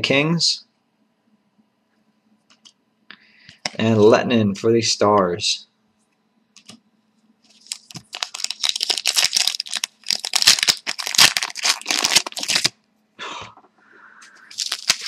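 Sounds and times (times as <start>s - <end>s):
card pack wrapper crinkling: 7.5s - 12.8s, 14.5s - 15.0s.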